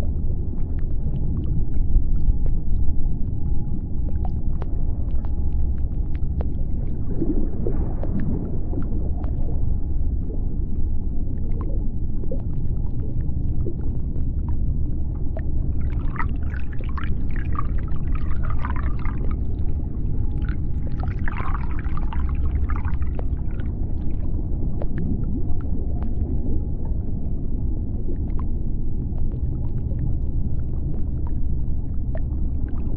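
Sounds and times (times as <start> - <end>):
deep underwater rumble: 0.0 - 32.9
clicks and crackles: 4.0 - 7.3.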